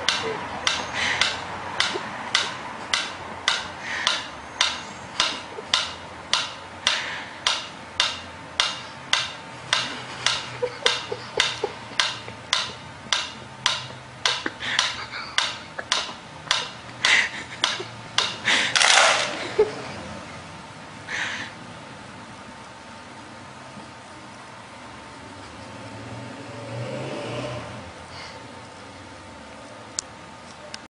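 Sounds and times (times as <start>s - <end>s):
sharp clicks: 0.0s - 19.4s.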